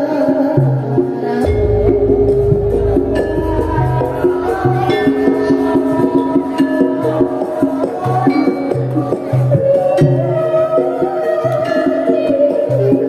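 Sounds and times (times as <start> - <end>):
gamelan music over loudspeakers: 0.0 - 13.0
deep drum beats: 1.4 - 8.4
short percussion strikes: 1.4 - 8.8
held metallophone notes: 1.4 - 10.4.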